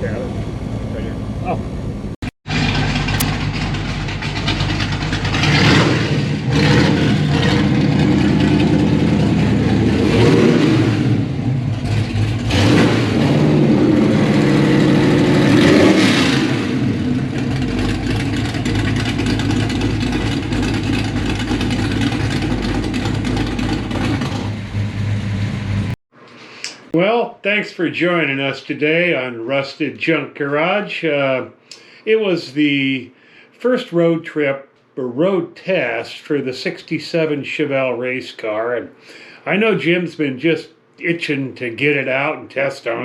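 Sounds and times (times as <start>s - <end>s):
car engine revving and idling: 0.0s - 26.0s.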